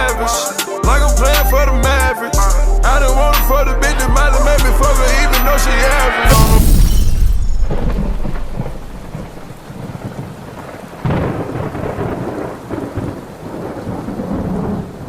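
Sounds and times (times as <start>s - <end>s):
thunder rumbling: 6.3s - 15.0s
steady rain: 7.6s - 15.0s.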